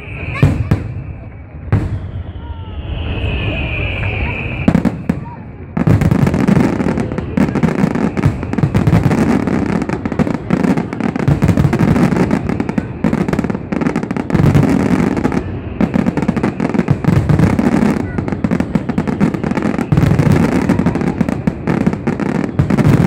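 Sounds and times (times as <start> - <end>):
heavy low booms: 0.0 - 13.0
fireworks bursts and crackling: 0.0 - 23.0.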